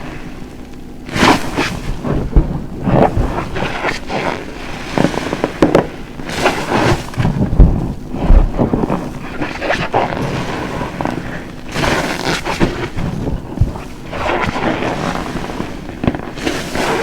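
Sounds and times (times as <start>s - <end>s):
soapy sponge squelching: 1.1s - 17.0s.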